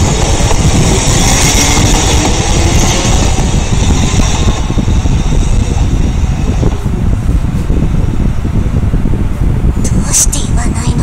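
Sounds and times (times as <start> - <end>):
train rumbling past: 0.0 - 11.0.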